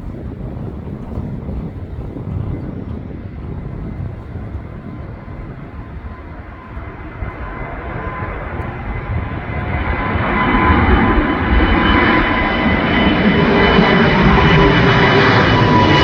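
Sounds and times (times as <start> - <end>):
jet airliner engine roaring: 0.0 - 16.0
wind buffeting microphone: 0.0 - 16.0.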